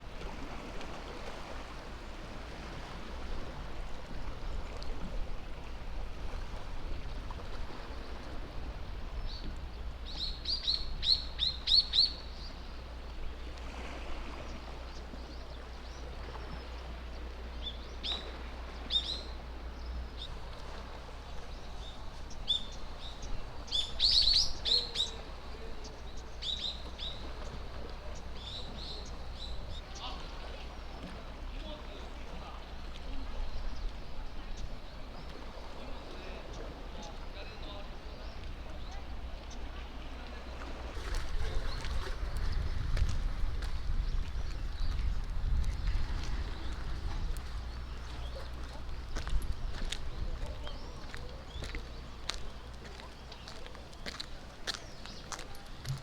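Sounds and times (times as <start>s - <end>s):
small birds chirping: 9.2s - 13.4s, 21.2s - 31.1s, 41.0s - 56.0s.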